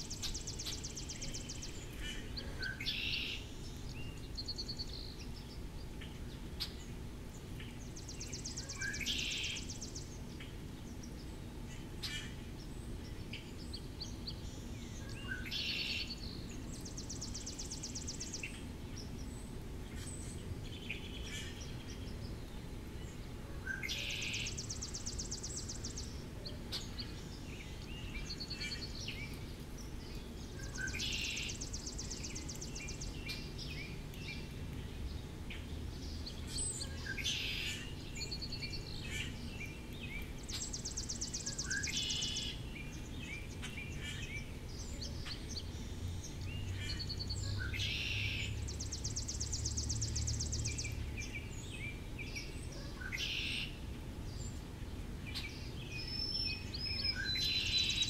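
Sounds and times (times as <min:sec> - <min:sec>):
bird chirps and calls: 0:36.0 - 0:54.6, 0:55.3 - 0:58.0.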